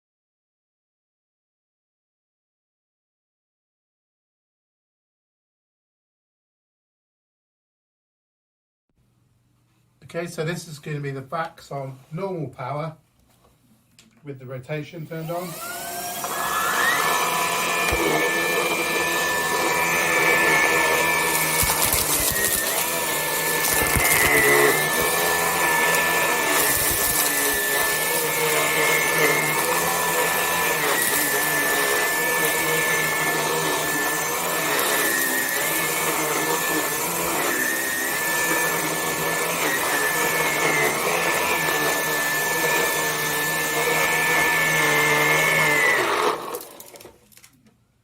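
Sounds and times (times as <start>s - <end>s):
vacuum cleaner motor whine: 15.0s - 47.2s
vacuum suction rushing: 15.4s - 29.6s.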